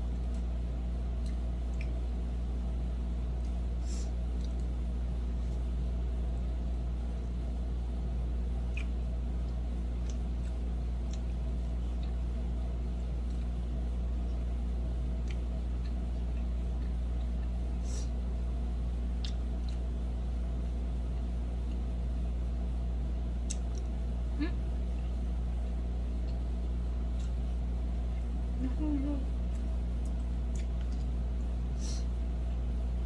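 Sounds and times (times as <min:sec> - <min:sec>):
low droning hum: 0:00.0 - 0:33.0
eating smacks: 0:29.4 - 0:31.2.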